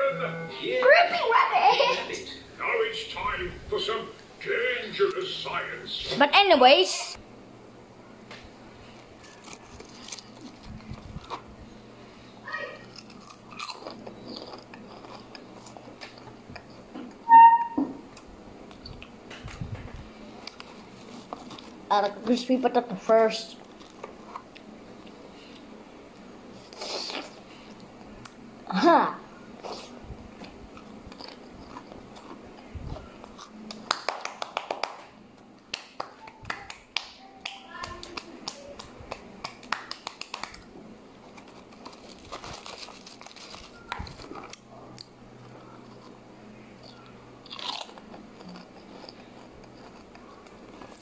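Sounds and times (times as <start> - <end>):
chewing crunchy snacks: 8.9 - 11.5, 12.8 - 16.9, 20.3 - 22.4, 23.6 - 25.7, 26.6 - 28.4, 29.6 - 34.1, 41.2 - 51.0
short high-pitched tone: 17.2 - 17.9.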